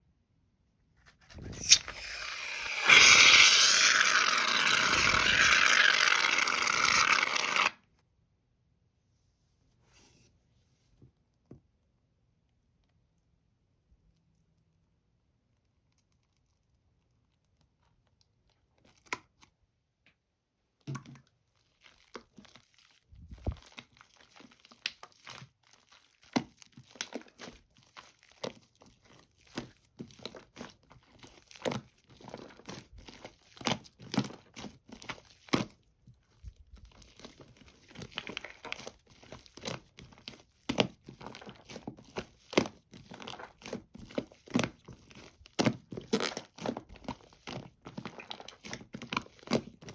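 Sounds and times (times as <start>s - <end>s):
slime crackling and popping: 1.5s - 7.8s.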